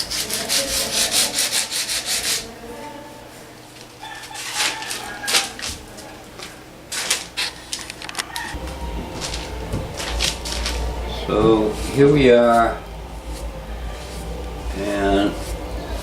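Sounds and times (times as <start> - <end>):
sanding strokes on plastic: 0.0 - 2.5.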